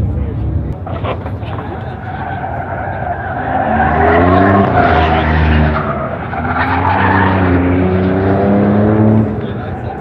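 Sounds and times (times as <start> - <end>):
car engine revving hard: 3.3 - 10.0.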